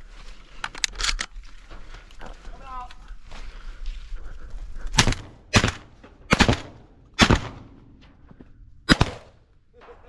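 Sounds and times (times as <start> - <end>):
shotgun shots with echo: 5.0 - 7.7, 8.9 - 9.4.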